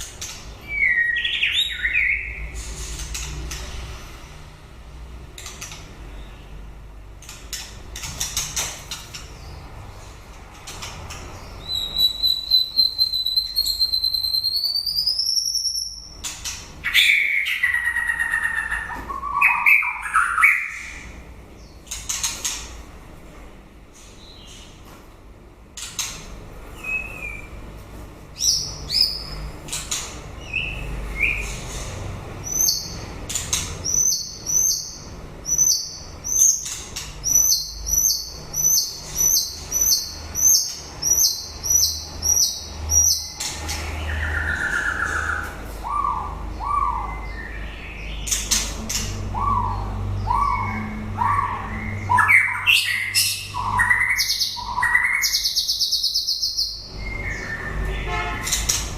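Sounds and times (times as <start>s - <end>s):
bird singing high whistled notes: 0.6s - 2.4s, 11.6s - 16.1s, 49.4s - 58.2s.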